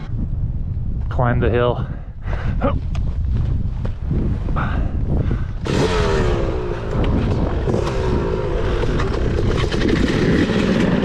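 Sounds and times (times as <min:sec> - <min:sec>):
heavy low rumble: 0:00.0 - 0:11.0
dirt bike engine revving: 0:05.6 - 0:11.0.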